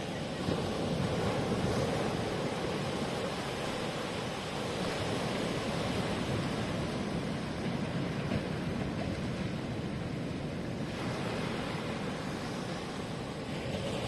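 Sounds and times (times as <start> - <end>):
ocean surf washing onto shore: 0.0 - 14.0.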